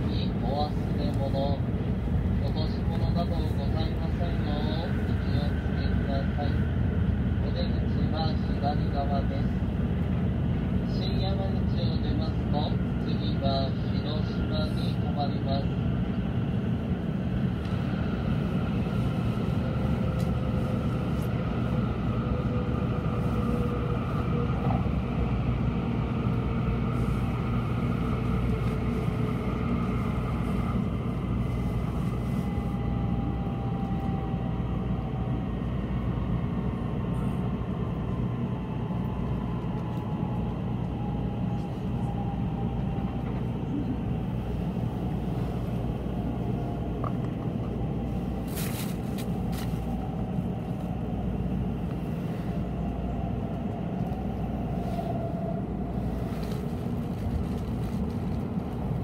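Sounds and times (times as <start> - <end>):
train cabin rumble: 0.0 - 59.0.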